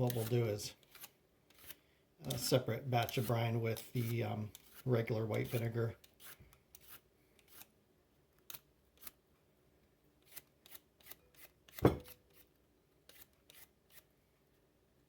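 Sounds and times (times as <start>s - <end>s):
knock on counter: 11.8s - 12.1s.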